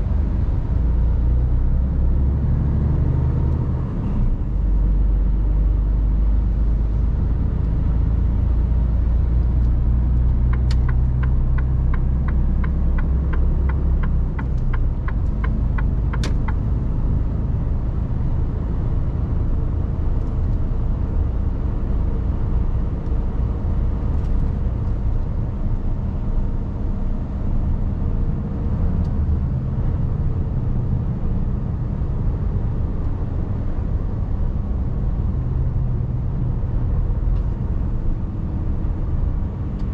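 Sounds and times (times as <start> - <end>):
truck engine and road rumble: 0.0 - 39.9
turn indicator ticking: 10.1 - 16.7.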